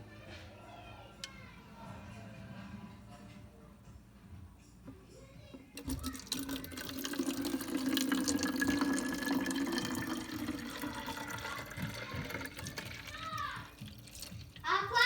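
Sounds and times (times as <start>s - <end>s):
liquid pouring into plastic bottle: 5.8s - 14.7s.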